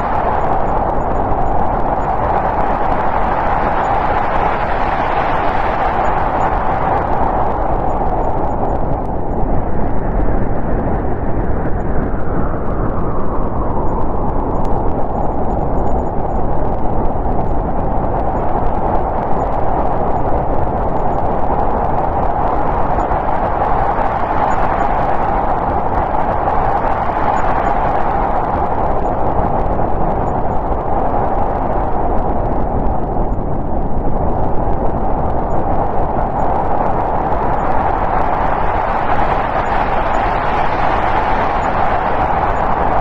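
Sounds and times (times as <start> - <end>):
low wind rumble: 0.0 - 43.0
snowstorm wind whistling: 0.0 - 43.0.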